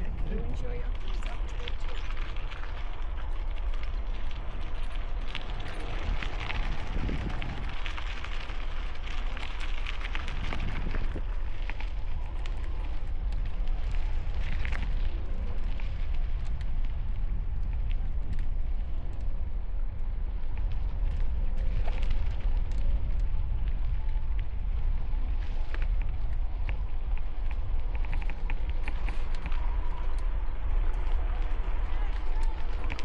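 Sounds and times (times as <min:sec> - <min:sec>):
tyres crackling on trail: 0:00.0 - 0:33.0
wind rumbling over microphone: 0:00.0 - 0:33.0.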